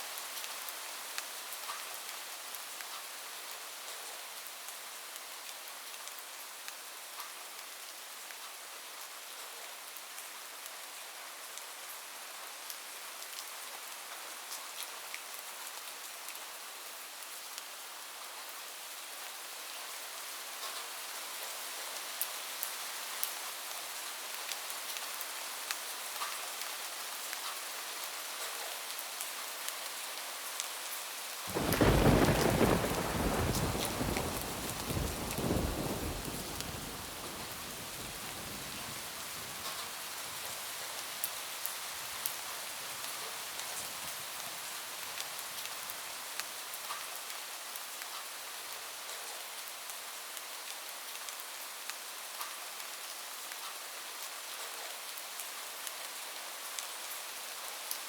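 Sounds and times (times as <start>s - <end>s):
heavy rain on a roof: 0.0s - 58.0s
thunder clap: 31.5s - 38.4s.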